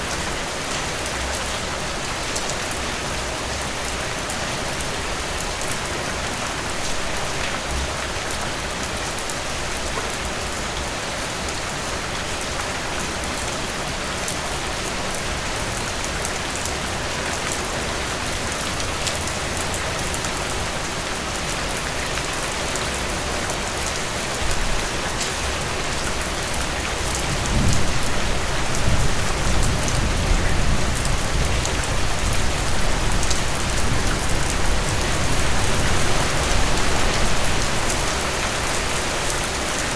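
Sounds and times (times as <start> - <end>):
heavy rain: 0.0 - 39.9
thunder rumbling: 27.3 - 36.1.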